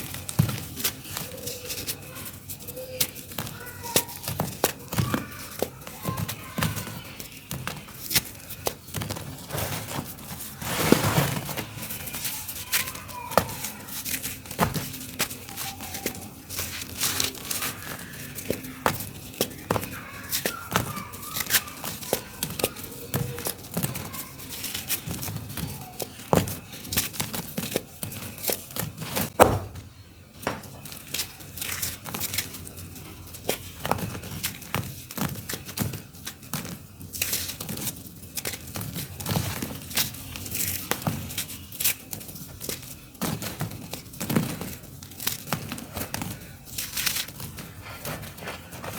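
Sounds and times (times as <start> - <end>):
dirt falling on floor thuds: 3.1 - 32.6
dirt lumps crunching: 7.8 - 25.7.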